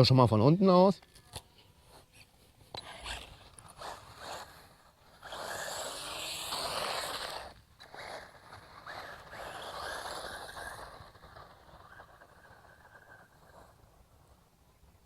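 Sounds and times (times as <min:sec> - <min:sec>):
high motor whine: 0:02.7 - 0:14.4
tyres on gravel: 0:02.8 - 0:14.4.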